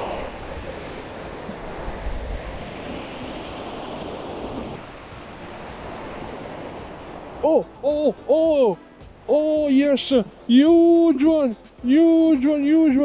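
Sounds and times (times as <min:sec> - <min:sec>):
wind on microphone: 0:00.0 - 0:08.1
ocean surf washing ashore: 0:00.0 - 0:13.0
person crying out: 0:07.4 - 0:09.5.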